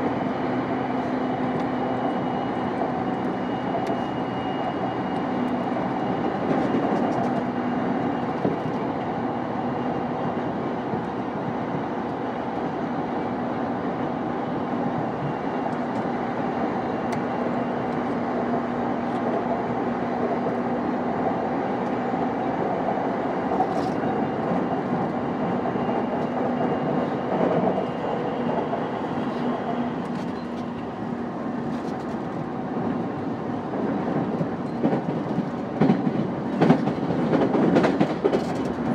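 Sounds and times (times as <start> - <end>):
steady train hum: 0.0 - 38.9
train rolling noise: 0.0 - 38.9.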